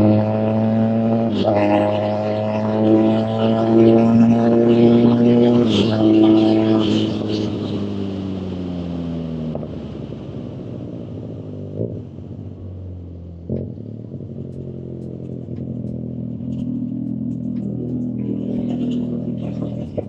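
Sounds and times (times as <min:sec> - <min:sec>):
motorcycle engine idling: 0:11.6 - 0:20.0.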